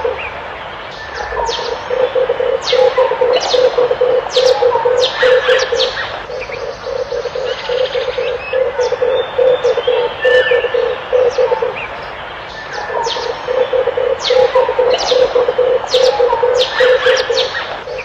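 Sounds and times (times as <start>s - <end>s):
doves cooing: 0.0s - 18.0s
small birds chirping: 0.0s - 18.0s.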